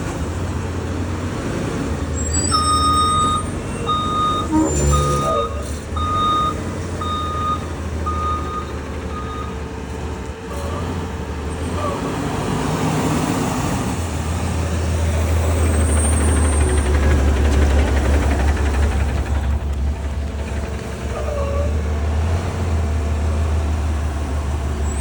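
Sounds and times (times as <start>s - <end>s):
garbage truck diesel engine: 0.0s - 25.0s
reversing alarm beeping: 2.3s - 9.7s.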